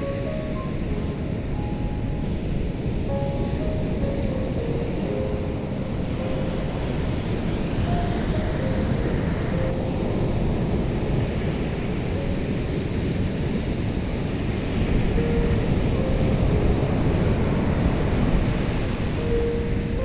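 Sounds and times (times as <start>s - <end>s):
waves breaking on a beach: 0.0s - 20.0s.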